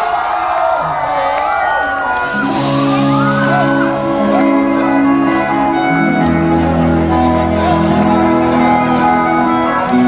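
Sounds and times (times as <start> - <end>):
live band playing: 2.1 - 10.0
bass line: 2.4 - 10.0.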